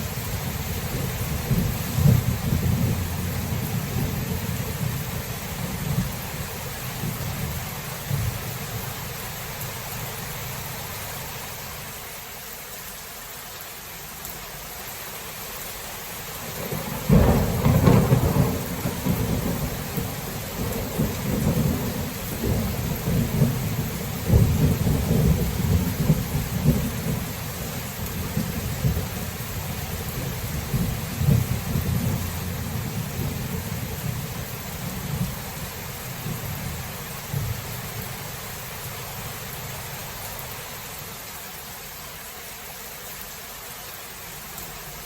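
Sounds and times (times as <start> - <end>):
rain hissing: 0.0 - 45.0
rolling thunder: 0.2 - 8.5, 16.5 - 37.8
sharp thunderclap: 0.9 - 4.9, 16.6 - 27.2, 30.2 - 34.2.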